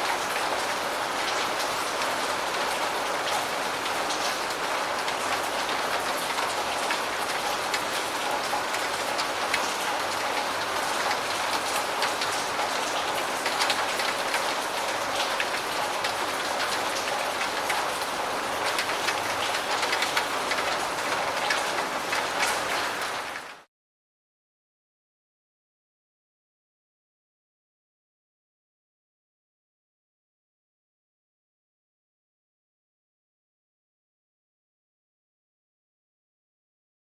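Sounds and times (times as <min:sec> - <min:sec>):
steady rain falling: 0:00.0 - 0:23.7
raindrops ticking on a surface: 0:00.1 - 0:23.7.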